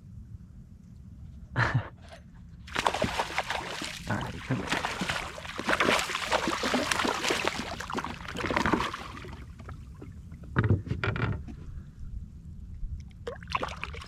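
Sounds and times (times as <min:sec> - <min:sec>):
water splashing and rushing: 0:02.7 - 0:09.8.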